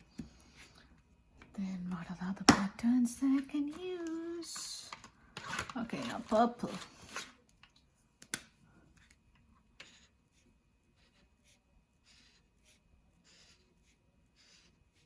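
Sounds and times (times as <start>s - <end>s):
marker strokes on paper: 9.8s - 15.0s.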